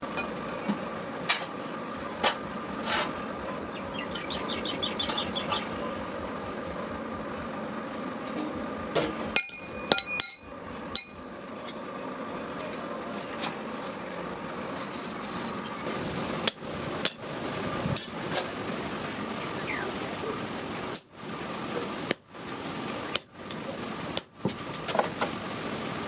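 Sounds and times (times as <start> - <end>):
workshop hum: 0.0 - 26.0
hammer striking metal: 9.3 - 11.2.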